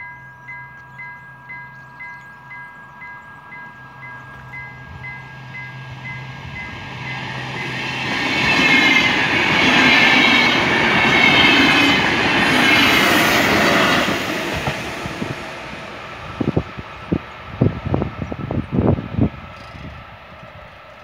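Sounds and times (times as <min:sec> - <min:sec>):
level crossing warning bell: 0:00.0 - 0:14.1
train passing with rail clatter: 0:00.0 - 0:21.0.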